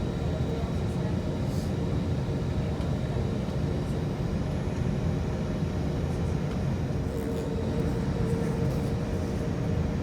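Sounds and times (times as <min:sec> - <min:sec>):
jet engine rumble in cabin: 0:00.0 - 0:10.0.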